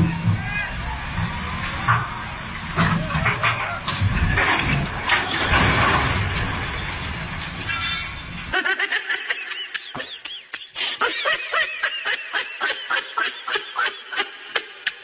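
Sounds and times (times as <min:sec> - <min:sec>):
outdoor rumble and hiss: 0:00.0 - 0:09.4
high-pitched giggling laughter: 0:08.5 - 0:15.0.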